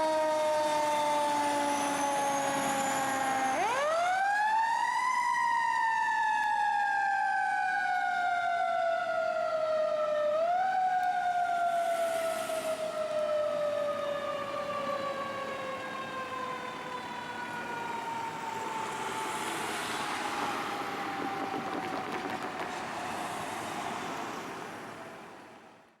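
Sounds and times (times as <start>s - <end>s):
road noise: 0.0s - 4.9s, 8.3s - 26.0s
fire truck siren winding down: 0.0s - 25.6s
truck engine: 12.2s - 25.7s.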